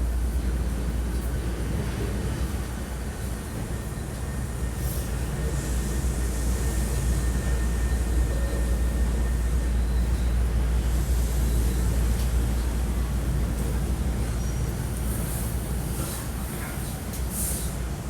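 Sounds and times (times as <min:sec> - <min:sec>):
train car hum and rumble: 0:00.0 - 0:18.0.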